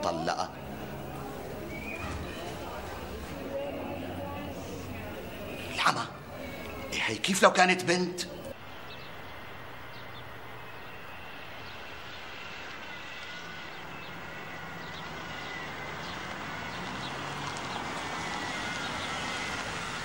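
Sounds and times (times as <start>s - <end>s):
street ambience: 0.0s - 20.0s
faint high chirps: 1.4s - 6.9s.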